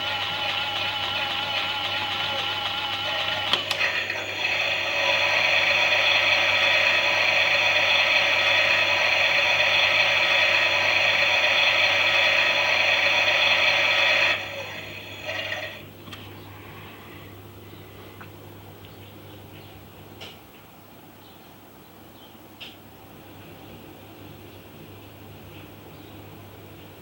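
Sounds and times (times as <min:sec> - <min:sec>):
toy motor whirring through gears: 0:00.0 - 0:15.8
motor sputters: 0:00.0 - 0:16.2.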